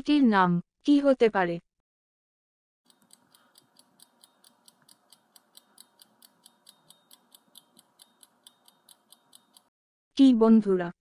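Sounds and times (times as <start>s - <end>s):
faint clock ticking: 2.9s - 9.7s.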